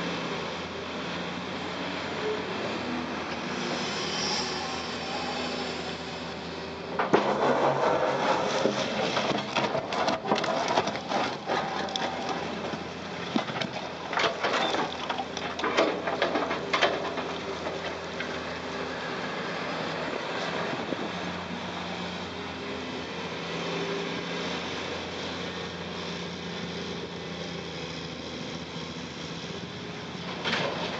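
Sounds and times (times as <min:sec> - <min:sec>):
excavator diesel engine running: 0:00.0 - 0:30.9
concrete crashing into truck: 0:07.0 - 0:18.0.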